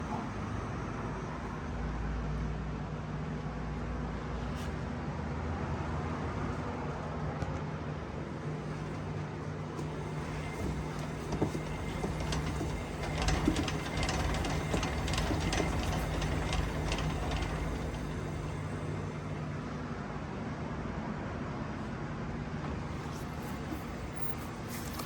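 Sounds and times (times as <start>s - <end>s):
steady low hum: 8.1s - 20.5s
drivetrain clicking: 9.8s - 19.3s.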